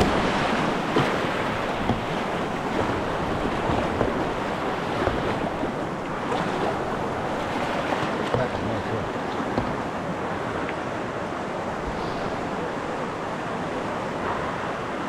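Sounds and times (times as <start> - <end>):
splashes or knocks: 0.0 - 10.0
river water rushing: 0.0 - 15.0.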